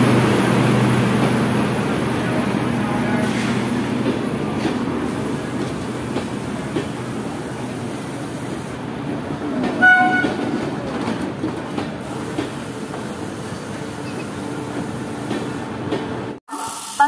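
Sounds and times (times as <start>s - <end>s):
train coaches rumbling: 0.0s - 16.4s
short train horn toot: 9.8s - 10.4s.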